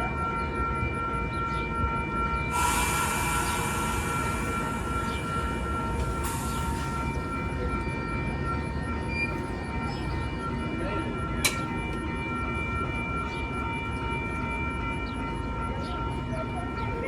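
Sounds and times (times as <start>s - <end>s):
train whining tones: 0.6s - 17.0s
train rumbling: 2.4s - 10.6s
loud hiss: 2.5s - 5.2s.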